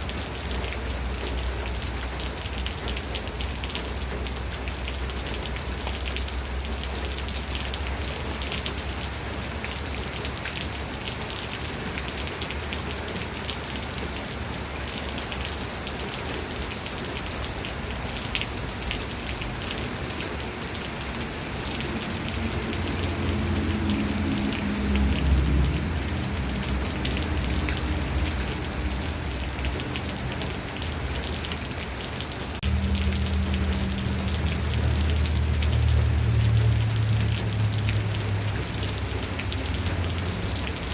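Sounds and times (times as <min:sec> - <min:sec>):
steady rain: 0:00.0 - 0:40.9
low rumble: 0:32.6 - 0:40.6.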